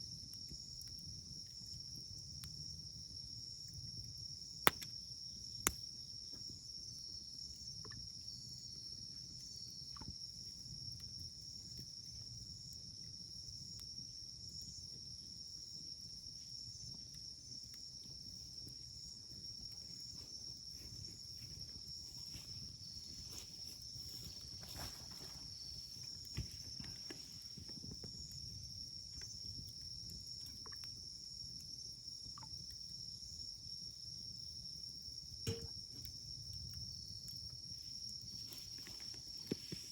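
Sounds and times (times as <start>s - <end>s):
campfire crackling: 0.0s - 39.9s
crickets trilling: 0.0s - 39.9s.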